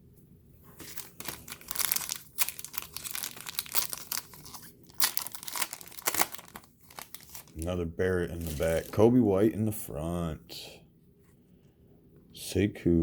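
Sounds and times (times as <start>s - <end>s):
plastic wrapper tearing and crinkling: 0.8s - 7.7s, 8.3s - 9.0s.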